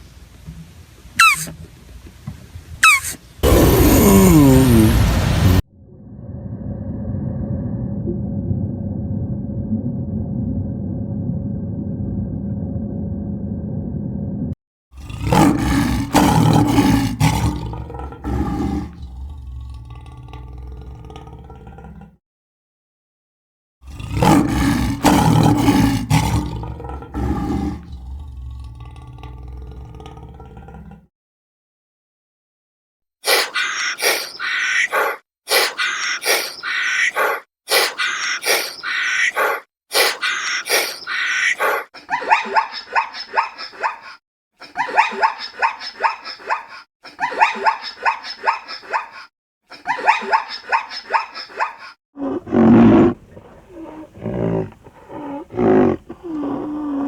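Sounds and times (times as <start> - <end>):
elephant calling: 1.2 - 1.5, 2.8 - 4.7, 52.3 - 57.0
looping animal calls: 1.2 - 1.5, 2.8 - 4.0, 33.3 - 57.0.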